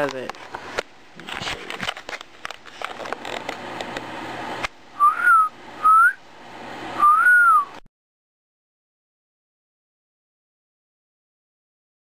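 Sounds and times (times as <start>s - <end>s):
crackly rustling: 0.0s - 4.0s
person whistling: 5.0s - 6.2s, 7.0s - 7.8s.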